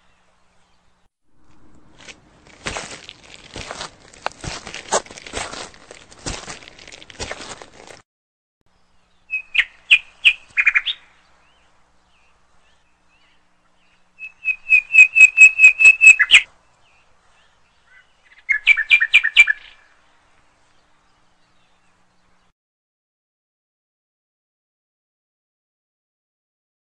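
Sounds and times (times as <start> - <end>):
bird chirping rapid high notes: 14.2 - 16.4.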